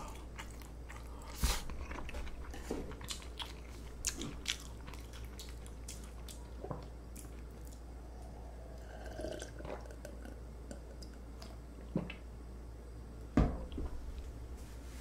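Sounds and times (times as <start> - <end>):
person chewing food: 0.0 - 11.6.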